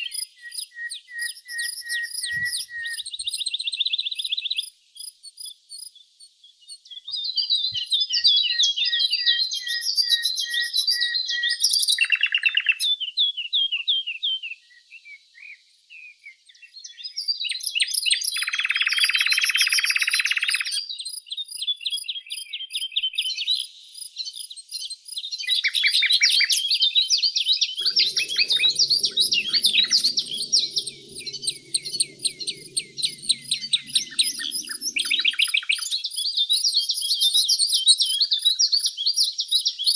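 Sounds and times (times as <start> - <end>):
songbirds chirping and singing: 0.0 - 4.8, 6.0 - 39.9
faint low rumble: 27.8 - 35.9.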